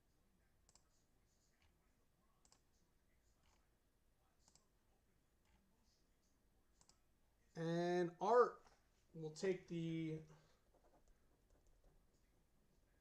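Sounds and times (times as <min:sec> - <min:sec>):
faint sharp clicks: 0:06.8 - 0:07.0.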